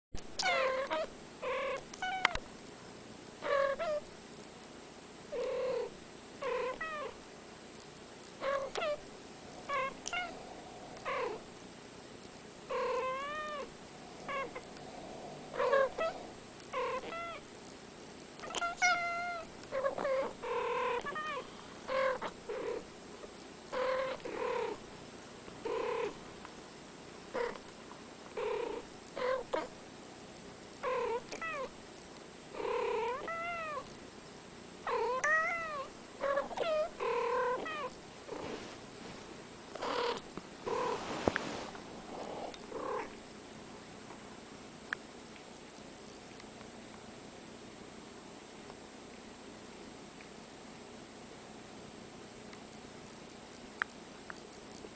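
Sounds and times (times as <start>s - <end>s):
cats meowing: 8.4s - 11.5s, 12.7s - 17.4s, 18.4s - 20.3s, 33.0s - 33.9s, 34.9s - 38.6s.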